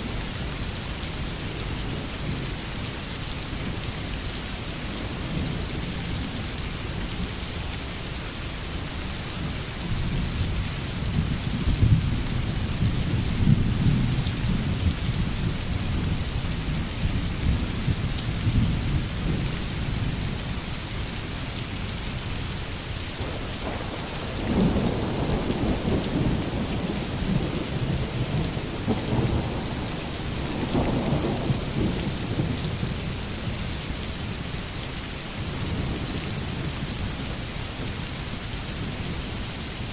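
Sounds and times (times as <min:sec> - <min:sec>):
steady rain: 0:00.0 - 0:39.9
distant thunder rumbling: 0:23.2 - 0:33.0.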